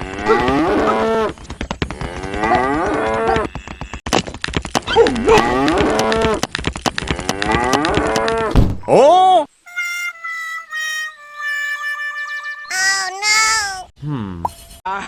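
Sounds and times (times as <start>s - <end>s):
cattle mooing: 0.0s - 1.3s, 2.0s - 4.0s, 5.1s - 6.4s, 7.1s - 8.5s
rapid clicking: 5.9s - 8.5s.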